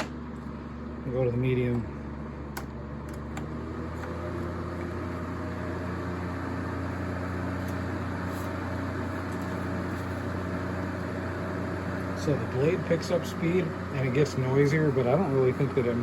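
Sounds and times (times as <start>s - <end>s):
fan switch click: 2.5s - 3.5s.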